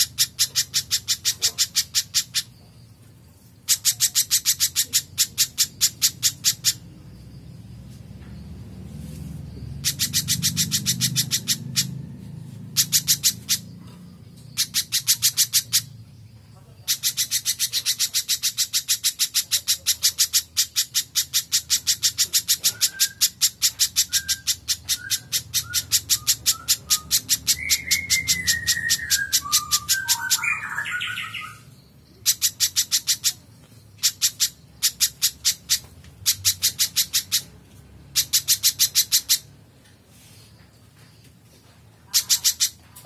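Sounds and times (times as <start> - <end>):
low background hum: 0.0 - 43.0
bird calling in sharp chips: 3.4 - 6.9, 16.8 - 40.5, 41.1 - 43.0
faint whistled bird notes: 24.0 - 32.0.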